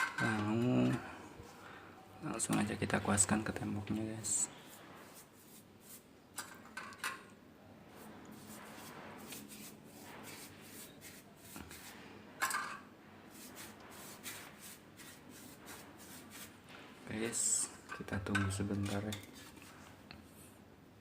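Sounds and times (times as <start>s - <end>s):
paintbrush swishing on wall: 4.0s - 6.3s, 7.9s - 12.3s, 13.2s - 17.1s.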